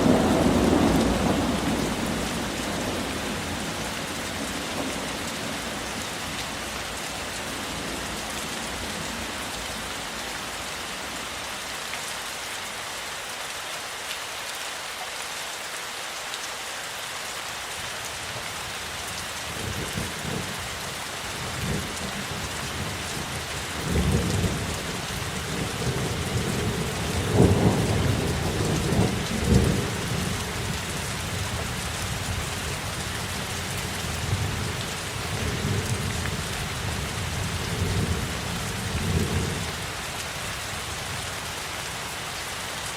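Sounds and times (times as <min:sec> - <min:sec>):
thunder rumbling: 0:00.0 - 0:05.8
steady rain falling: 0:00.0 - 0:42.9.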